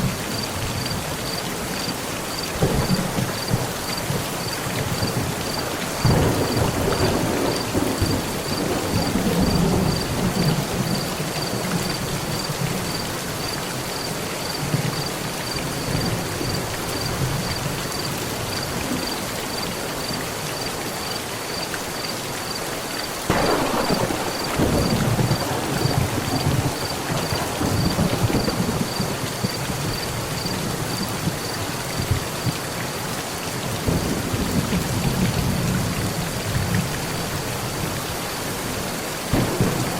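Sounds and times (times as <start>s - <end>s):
heavy rain on metal roof: 0.0s - 39.9s
rolling thunder: 2.6s - 12.5s, 23.3s - 31.5s, 39.3s - 39.9s.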